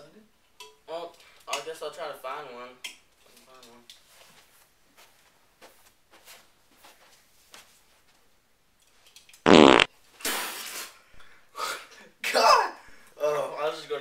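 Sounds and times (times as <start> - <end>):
loud fart: 9.5 - 10.5.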